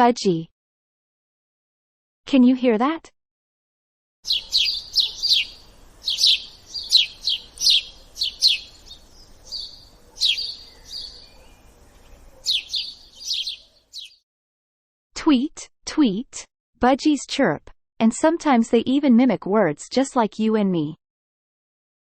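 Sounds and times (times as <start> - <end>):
budgie chirping: 4.3 - 14.2.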